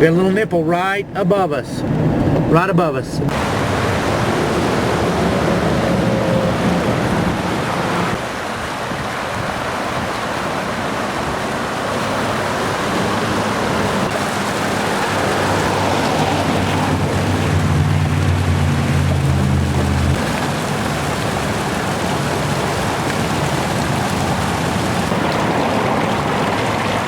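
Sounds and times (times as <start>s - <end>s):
rain and wind on vehicle: 0.0s - 27.0s
low droning hum: 15.0s - 21.5s.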